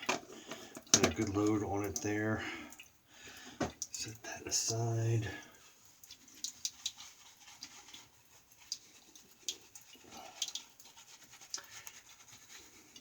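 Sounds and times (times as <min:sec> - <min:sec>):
shaving brush on lather: 0:04.0 - 0:13.0.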